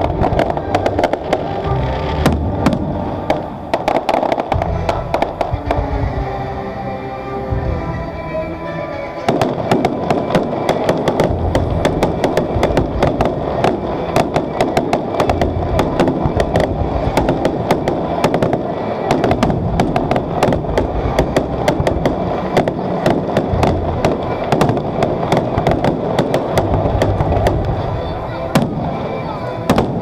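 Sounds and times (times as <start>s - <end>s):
fireworks bangs and crackles: 0.0s - 6.6s, 7.5s - 30.0s
low rumble: 0.0s - 8.7s, 23.5s - 25.6s.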